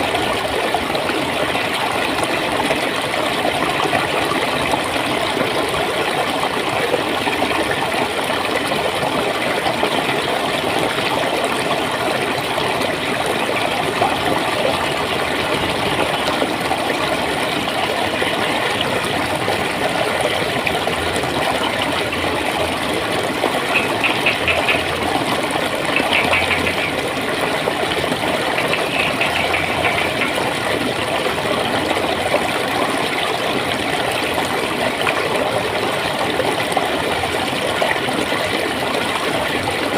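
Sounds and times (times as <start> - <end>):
water flowing over stones: 0.0 - 39.9.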